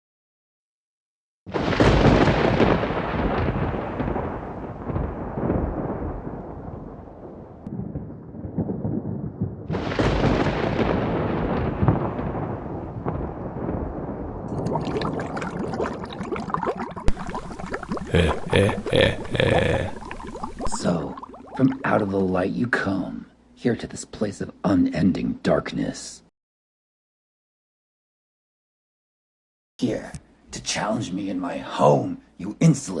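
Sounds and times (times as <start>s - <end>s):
thunder claps rolling: 1.5s - 21.8s.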